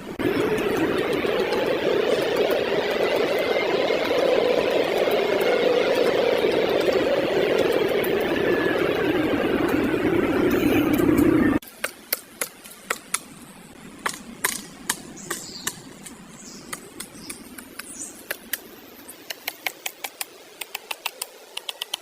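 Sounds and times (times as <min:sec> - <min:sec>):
woodpecker pecking at wood: 0:14.0 - 0:22.0.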